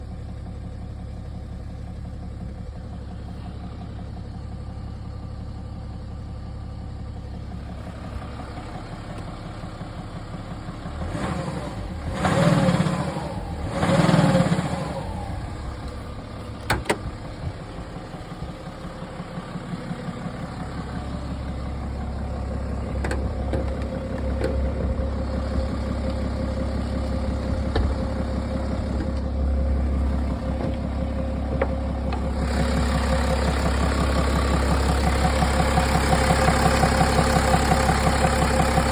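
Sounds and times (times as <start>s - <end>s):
diesel engine idling with knock: 0.0s - 38.9s
engine revving: 10.9s - 16.1s, 22.4s - 38.9s.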